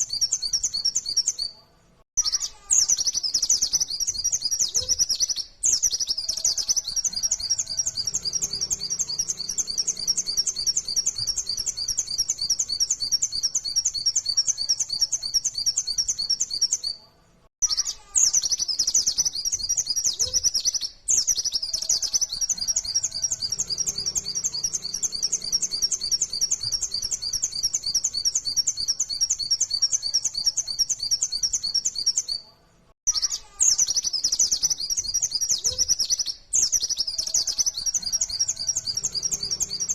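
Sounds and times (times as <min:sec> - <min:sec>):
bird singing rapid high chirps: 0:00.0 - 0:01.6, 0:02.2 - 0:17.0, 0:17.6 - 0:32.4, 0:33.0 - 0:39.9.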